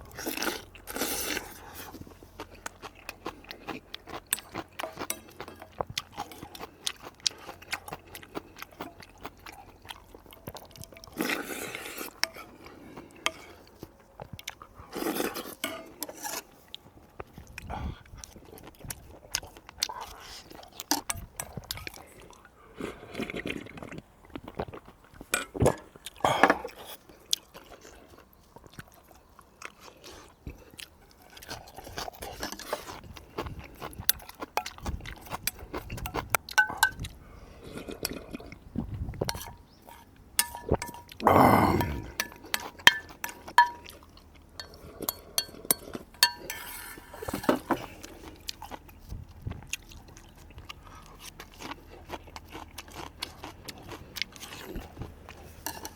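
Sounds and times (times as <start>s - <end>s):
chewing and slurping: 0.0s - 55.9s
spoon and chopsticks clinking dishes: 36.5s - 37.0s, 40.4s - 41.2s, 41.8s - 43.9s, 44.6s - 47.8s.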